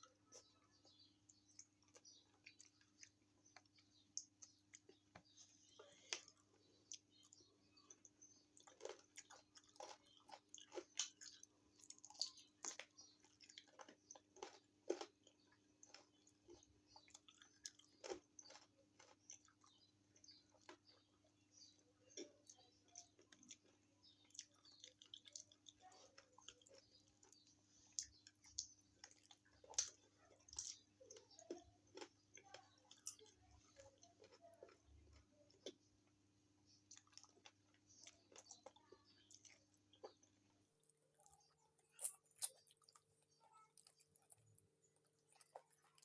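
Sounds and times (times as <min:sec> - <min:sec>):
person chewing and biting: 0:06.0 - 0:19.7.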